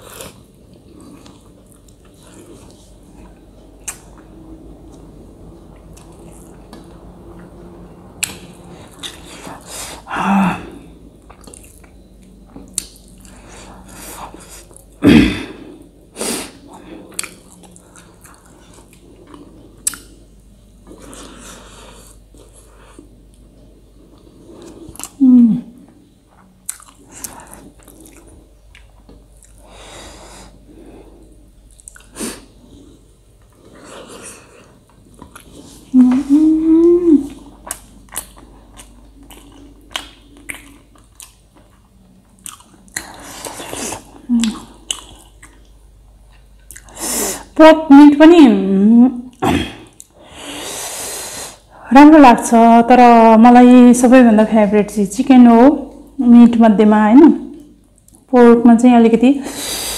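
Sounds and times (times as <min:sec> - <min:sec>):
person chewing and lip-smacking: 0:00.0 - 0:04.2, 0:11.2 - 0:13.4, 0:17.0 - 0:20.2, 0:24.6 - 0:25.2, 0:26.3 - 0:29.7, 0:31.6 - 0:32.2, 0:34.9 - 0:36.5, 0:37.2 - 0:47.0.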